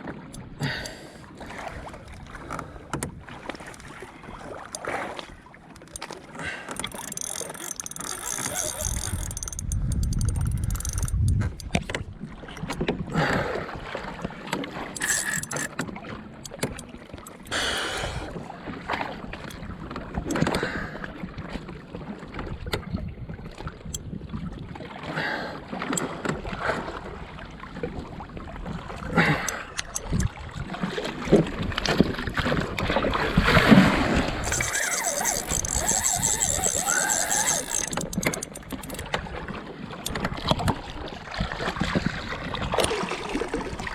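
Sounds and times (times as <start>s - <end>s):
water splashing against hull: 0.0s - 43.9s
gear knocking against boat: 5.6s - 13.5s, 14.2s - 18.0s, 34.3s - 39.3s.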